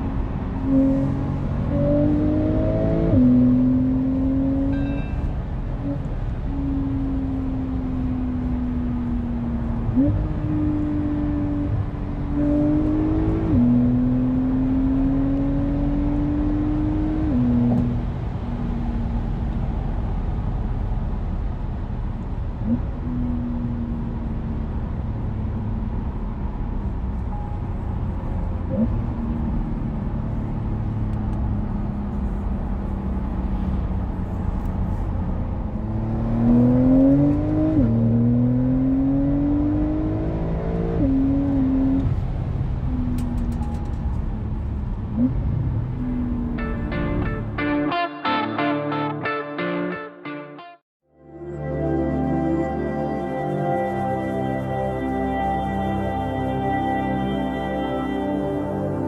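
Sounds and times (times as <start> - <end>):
car engine accelerating through gears: 0.0 - 47.6.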